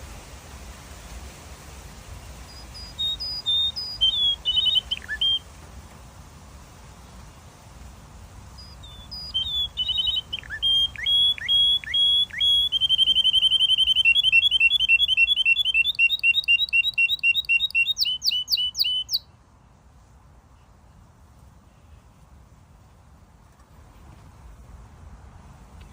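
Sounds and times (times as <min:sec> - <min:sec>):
canary singing: 0:02.4 - 0:05.5, 0:08.5 - 0:19.3.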